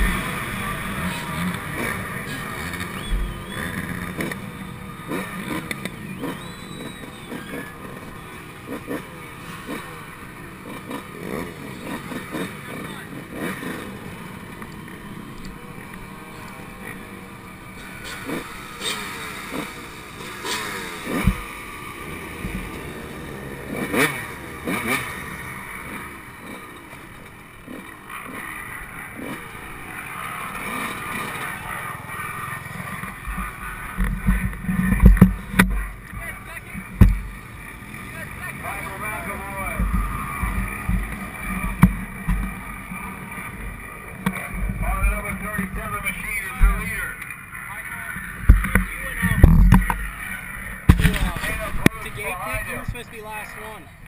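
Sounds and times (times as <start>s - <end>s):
muffled motocross engine revving: 0.0s - 54.0s
bike knocks and clatter: 50.9s - 51.9s.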